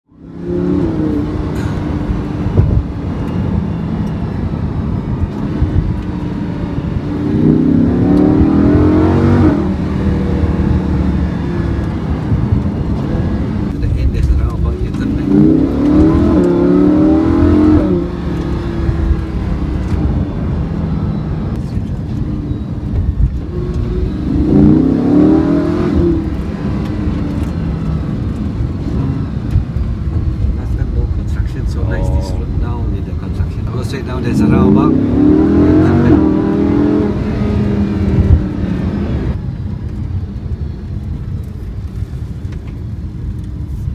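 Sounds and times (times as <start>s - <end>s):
car engine revving from cabin: 5.3s - 13.9s, 14.5s - 21.6s, 23.4s - 29.4s, 33.7s - 39.4s.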